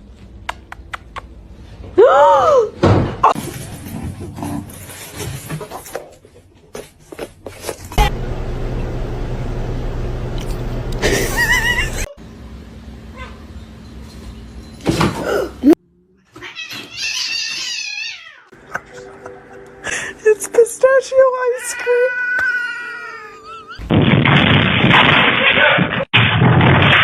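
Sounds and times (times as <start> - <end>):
cat yowling: 16.3 - 18.5, 21.6 - 23.8.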